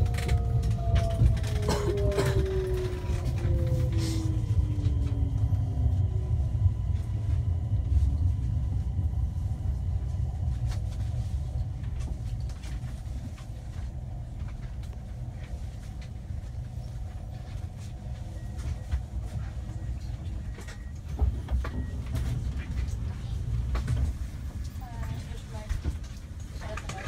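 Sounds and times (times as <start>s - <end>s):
train rumbling to a stop: 0.0s - 27.0s.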